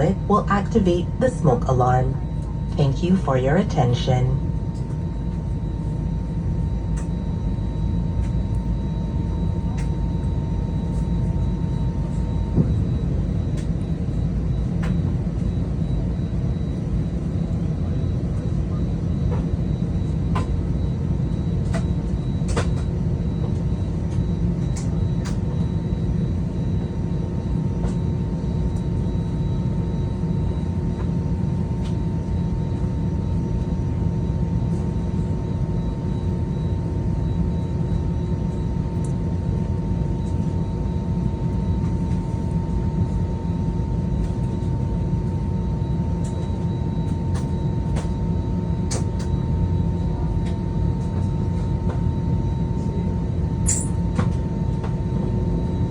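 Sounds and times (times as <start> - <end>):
aircraft cabin engine hum: 0.0 - 55.9.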